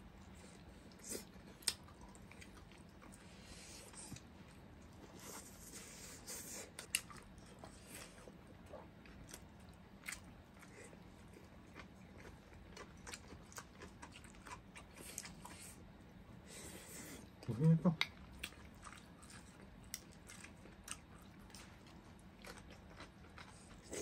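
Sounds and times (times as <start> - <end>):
people chewing and biting: 0.3 - 15.9, 16.5 - 24.0.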